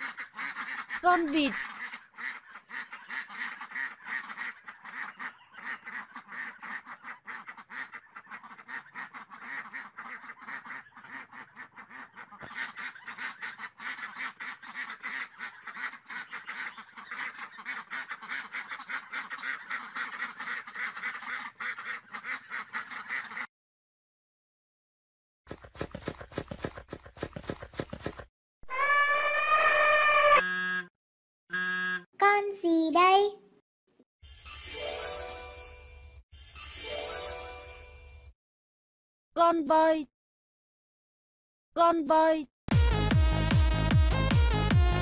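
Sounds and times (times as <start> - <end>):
ducks quacking: 0.0 - 23.5.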